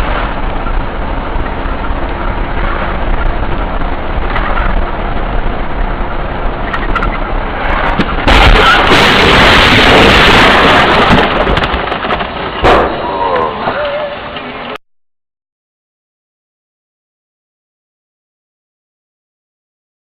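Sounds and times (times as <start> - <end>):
car driving noise: 0.0 - 14.8.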